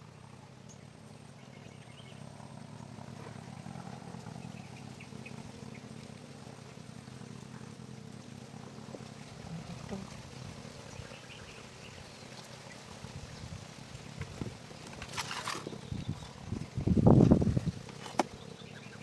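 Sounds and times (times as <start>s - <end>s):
high chirps of birds or insects: 0.0s - 19.0s
steady low rumble: 15.7s - 19.0s.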